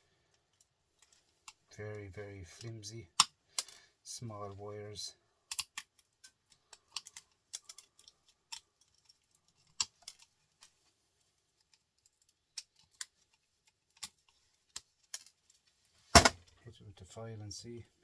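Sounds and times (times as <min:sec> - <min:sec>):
small parts clicking and tapping: 0:00.2 - 0:02.0, 0:02.6 - 0:04.0, 0:05.5 - 0:16.6.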